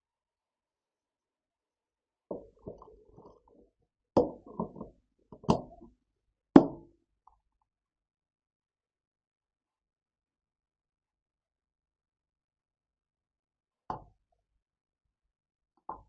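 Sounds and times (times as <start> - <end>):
objects knocking and thudding: 2.3 - 3.4.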